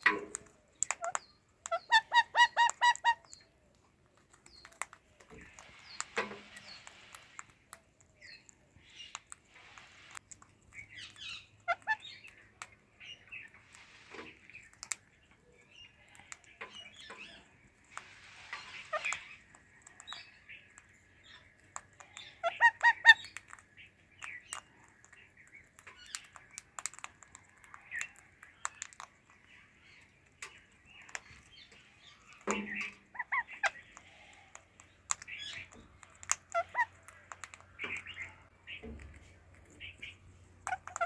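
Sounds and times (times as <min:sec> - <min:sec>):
parakeets chirping: 0:00.8 - 0:03.5, 0:08.2 - 0:14.6, 0:15.6 - 0:26.8, 0:27.7 - 0:39.1, 0:39.7 - 0:41.0
sharp clicks: 0:32.2 - 0:39.1.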